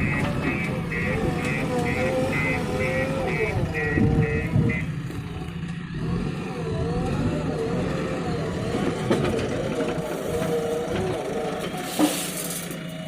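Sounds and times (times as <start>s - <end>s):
diesel engine working: 0.0s - 13.0s.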